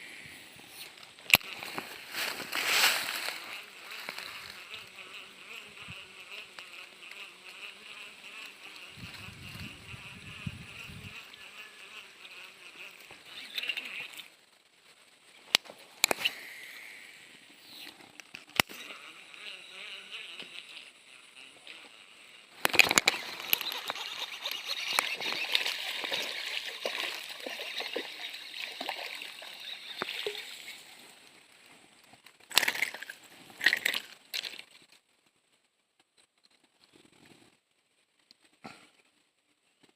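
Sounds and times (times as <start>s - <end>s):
water splashing: 22.8s - 31.0s, 32.5s - 34.7s.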